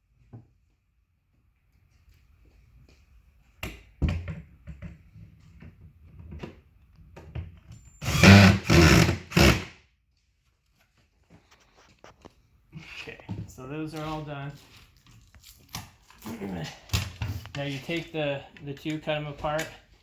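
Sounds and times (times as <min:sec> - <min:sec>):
loud rasping bursts: 0:08.0 - 0:09.8.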